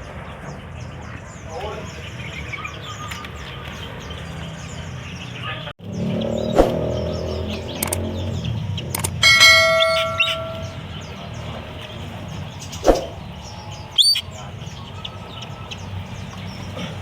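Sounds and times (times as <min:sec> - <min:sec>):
songbirds chirping: 0:00.0 - 0:17.0
loud metallic ring: 0:09.0 - 0:11.1.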